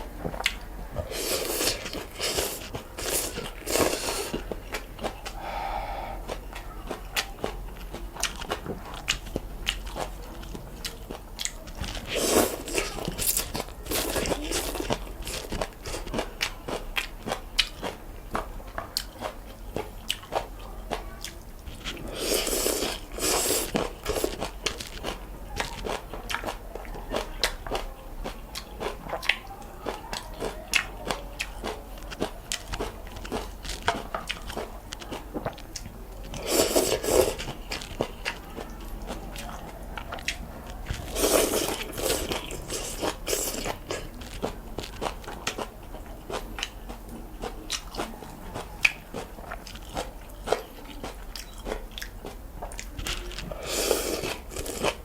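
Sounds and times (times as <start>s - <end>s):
wet chewing clicks: 0.0s - 55.0s
noodle slurps: 22.1s - 24.4s, 36.4s - 37.5s.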